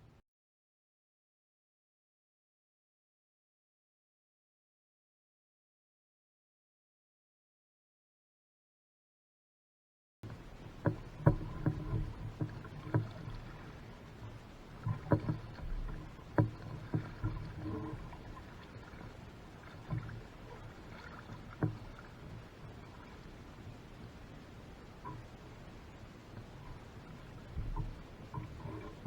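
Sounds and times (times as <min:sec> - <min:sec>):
hollow knocks against hull: 0:10.2 - 0:22.4, 0:27.5 - 0:29.0
boat paddling on water: 0:10.2 - 0:29.0.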